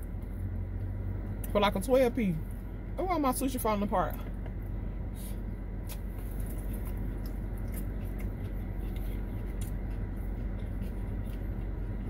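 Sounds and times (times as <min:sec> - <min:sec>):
steady low hum: 0:00.0 - 0:12.0
chewing with wet mouth clicks: 0:05.8 - 0:12.0.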